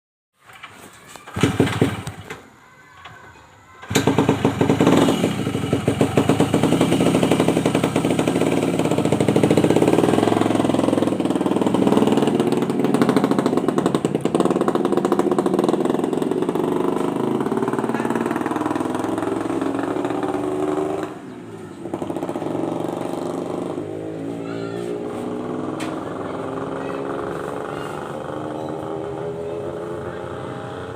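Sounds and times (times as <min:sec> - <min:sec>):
two-stroke motorcycle engine revving: 0:01.3 - 0:02.2, 0:03.8 - 0:30.9.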